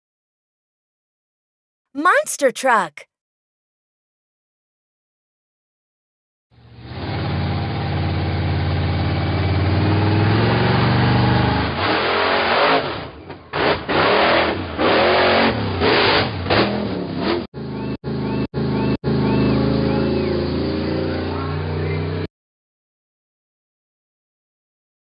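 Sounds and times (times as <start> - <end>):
monster truck engine revving: 6.6 - 22.2.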